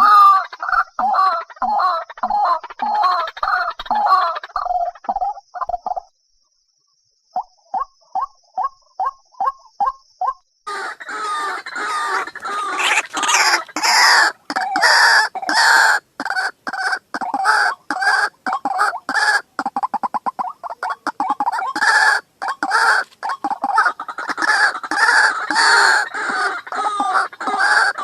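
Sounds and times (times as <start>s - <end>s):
waterhen harsh croaking call: 0.0s - 5.0s, 10.7s - 28.0s.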